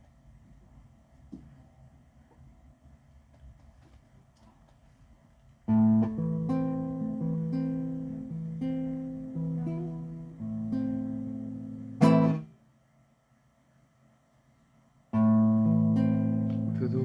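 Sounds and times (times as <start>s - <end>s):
acoustic guitar chords: 5.7s - 12.6s, 15.2s - 17.0s.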